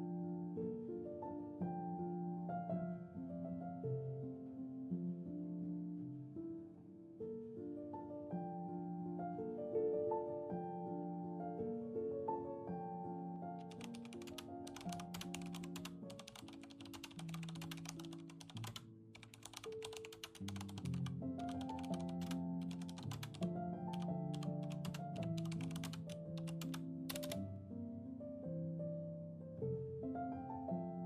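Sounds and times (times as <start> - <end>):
soft background music: 0.0 - 31.0
keyboard key clicks: 13.6 - 27.4.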